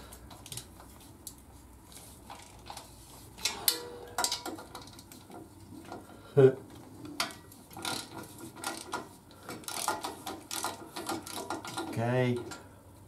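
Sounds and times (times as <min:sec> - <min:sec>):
hand ratchet clicking: 0:07.2 - 0:12.6.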